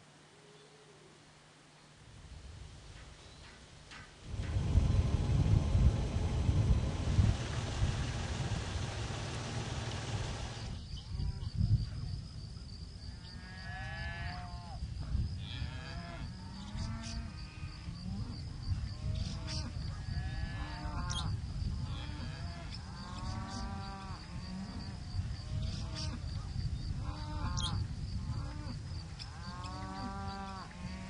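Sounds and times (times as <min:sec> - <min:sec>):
steady low rumble: 0:04.2 - 0:11.0.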